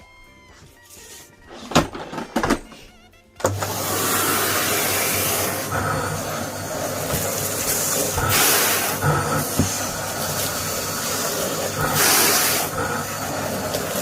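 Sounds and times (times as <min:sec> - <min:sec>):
knocks and handling: 0:00.6 - 0:03.6
vacuum cleaner motor: 0:03.4 - 0:14.0.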